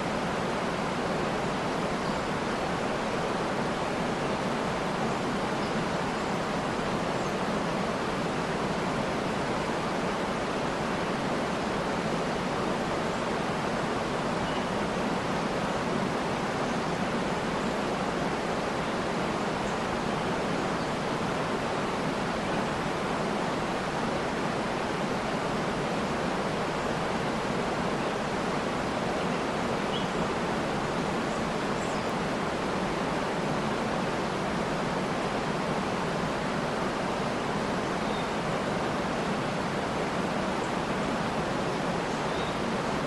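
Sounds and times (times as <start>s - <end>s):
faint bird chirps: 14.4s - 15.5s, 29.2s - 30.3s, 37.9s - 38.4s, 42.1s - 42.7s.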